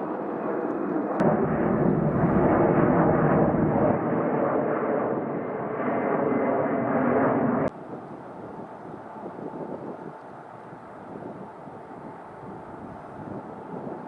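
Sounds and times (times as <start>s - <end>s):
jet engines roaring: 0.0s - 12.5s
outdoor rumble: 1.2s - 4.4s.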